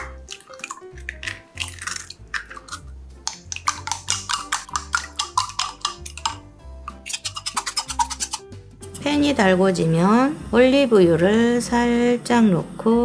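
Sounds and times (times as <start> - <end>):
chopsticks beating egg in glass: 0.0 - 8.5
egg cracking: 0.0 - 8.5
background music: 0.0 - 13.0.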